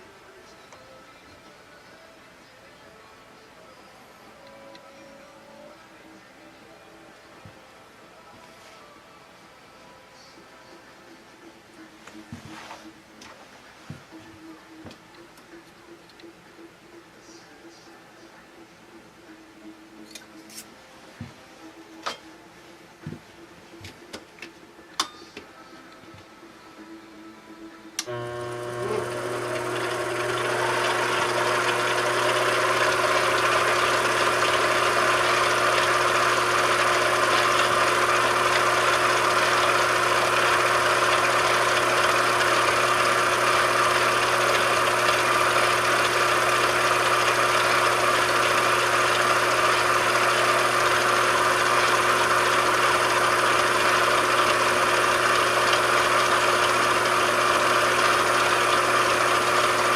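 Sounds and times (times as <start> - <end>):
machine tool humming: 28.0 - 59.9.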